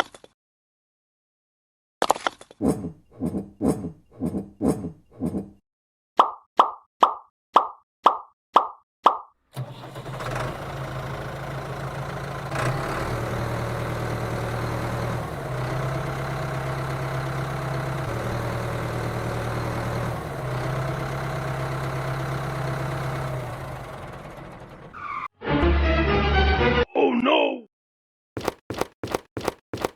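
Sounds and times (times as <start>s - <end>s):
tractor engine idling: 9.6s - 25.0s.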